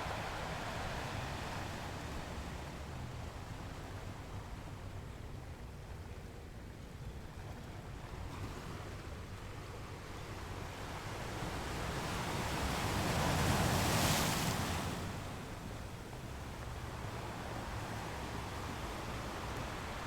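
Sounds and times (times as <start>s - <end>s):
surf washing: 0.0s - 4.4s, 10.6s - 20.0s.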